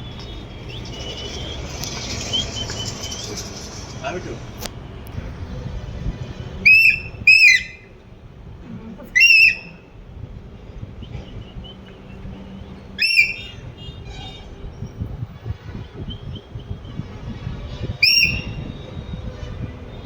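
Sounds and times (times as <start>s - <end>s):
parrot shrill whistling calls: 6.6s - 7.9s, 9.2s - 9.8s, 13.0s - 13.5s, 18.0s - 18.6s.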